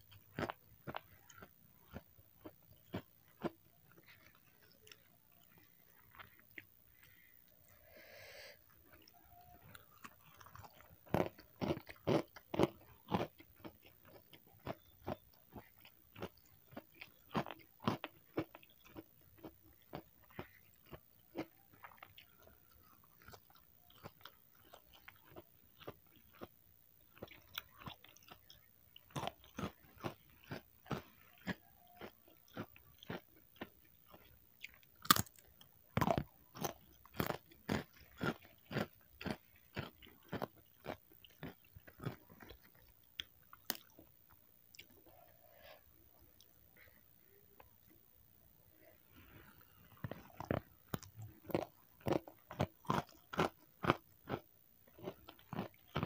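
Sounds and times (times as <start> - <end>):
chewing with wet mouth clicks: 0.0 - 7.8, 8.7 - 45.2.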